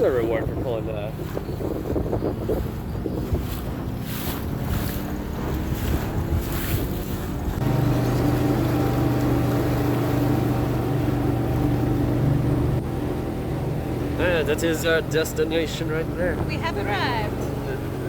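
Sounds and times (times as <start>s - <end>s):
wind on microphone: 0.0s - 14.0s
small boat motor running: 0.0s - 18.0s
water noise: 0.0s - 18.0s.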